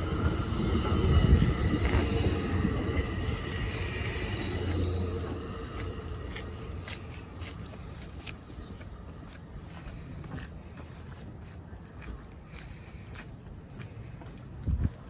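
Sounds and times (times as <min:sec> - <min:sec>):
train rumbling: 0:00.0 - 0:11.9.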